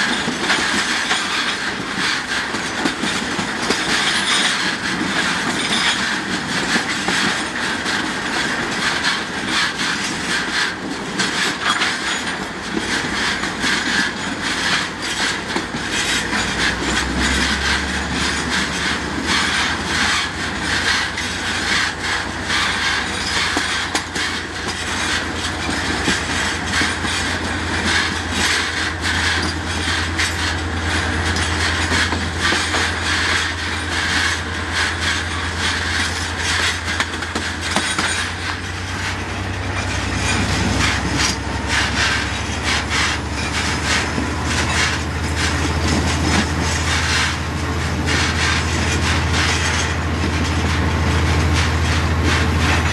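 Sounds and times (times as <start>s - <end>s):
train clicks and clacks: 0.0s - 52.9s
wheel-on-rail rolling noise: 0.0s - 52.9s.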